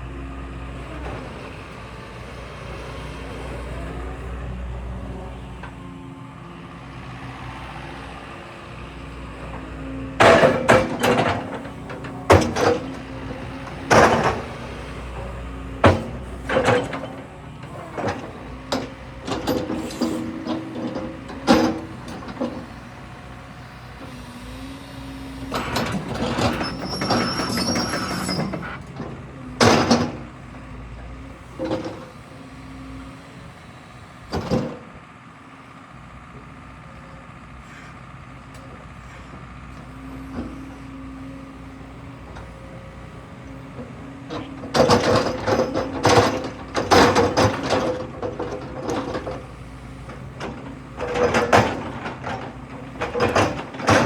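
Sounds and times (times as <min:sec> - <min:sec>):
excavator diesel engine running: 0:00.0 - 0:54.0
steel tracks clanking and squealing: 0:10.2 - 0:15.0, 0:15.8 - 0:22.7, 0:25.5 - 0:30.2.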